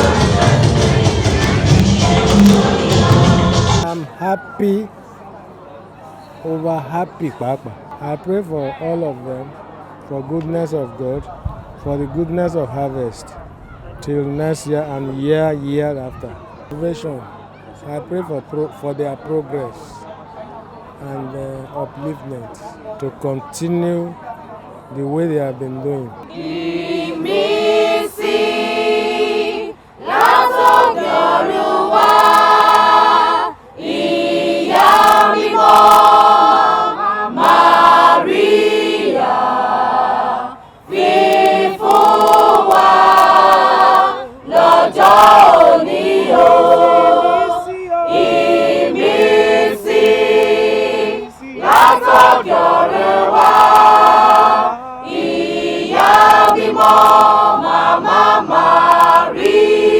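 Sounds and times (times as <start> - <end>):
choir singing: 0.0 - 4.1, 26.2 - 59.9.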